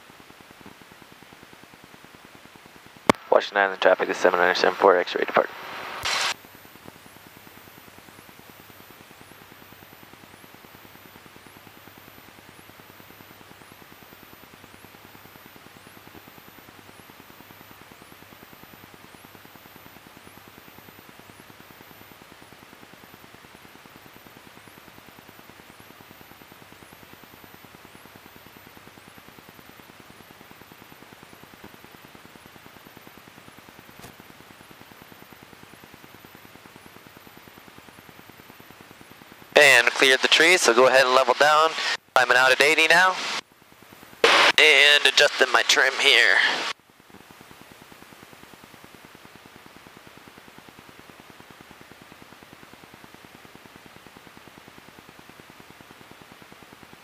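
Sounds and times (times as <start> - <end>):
static hiss with buzzing: 0.0 - 57.0
airplane engine and propeller drone: 3.2 - 6.0, 44.2 - 46.7.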